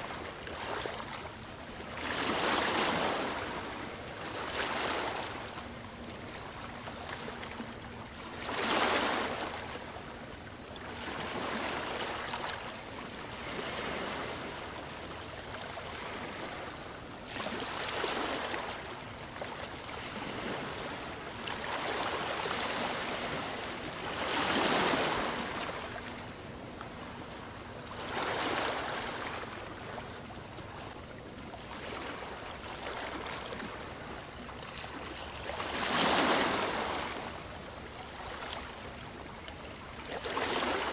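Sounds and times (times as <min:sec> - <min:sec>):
ocean waves breaking: 0:20.0 - 0:30.9, 0:31.6 - 0:40.9.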